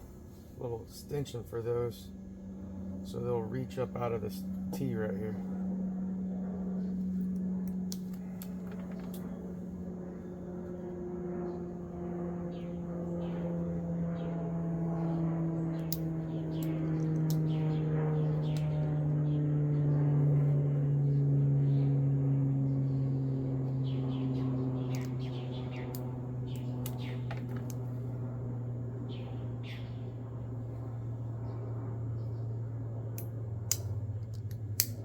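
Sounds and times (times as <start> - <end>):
low hum: 0.0 - 35.0
wire cutters snipping: 15.7 - 17.6, 33.2 - 35.0.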